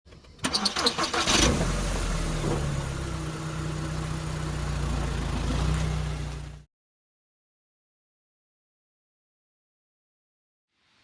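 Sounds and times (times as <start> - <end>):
vehicle engine starting and idling: 0.1 - 6.7.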